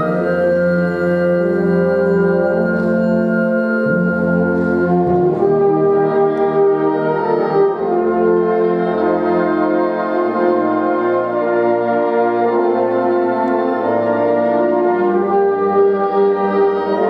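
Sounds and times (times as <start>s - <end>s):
sustained chords: 0.0s - 9.3s.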